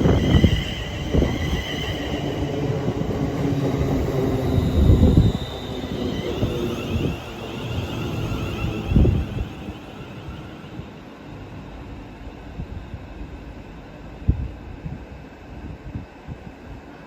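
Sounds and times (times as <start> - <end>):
train wheels squealing on rails: 0.0 - 11.7
train rumbling on track: 0.0 - 17.0.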